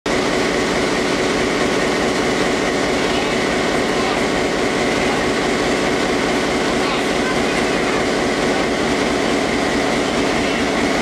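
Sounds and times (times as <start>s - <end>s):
railway train humming: 0.1s - 11.0s
people chattering: 6.5s - 8.7s.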